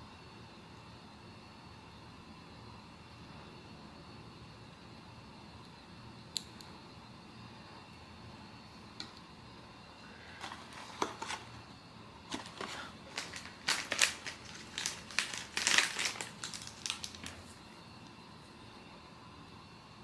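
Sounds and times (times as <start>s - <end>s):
packaging crinkling: 10.4s - 11.6s, 12.3s - 17.6s.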